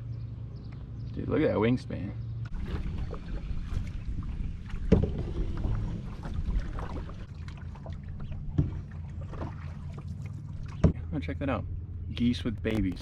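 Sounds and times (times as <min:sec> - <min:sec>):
paddle moving water: 0:02.5 - 0:11.0
knocks against canoe hull: 0:04.7 - 0:05.6, 0:08.5 - 0:08.8.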